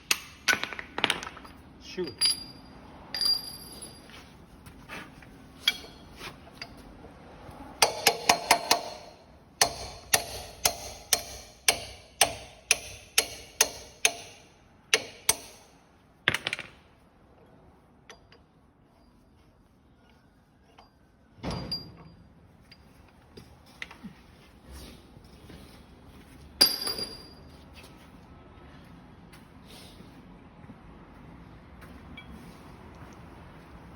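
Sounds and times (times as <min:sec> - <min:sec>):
hammer striking metal: 0:07.8 - 0:15.7.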